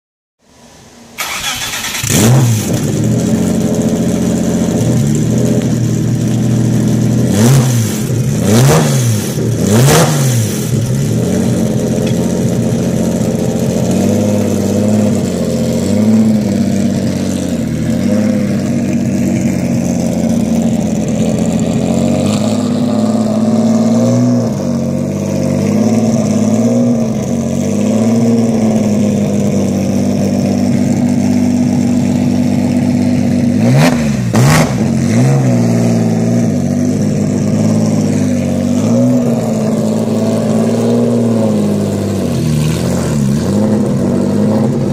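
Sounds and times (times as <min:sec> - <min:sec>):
car engine starting and revving: 0:01.2 - 0:44.9.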